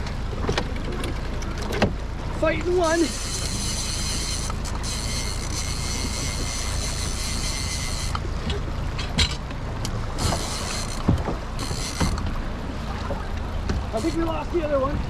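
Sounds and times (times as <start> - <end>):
outboard motor humming: 0.0 - 15.0
sharp knocks: 10.2 - 12.3.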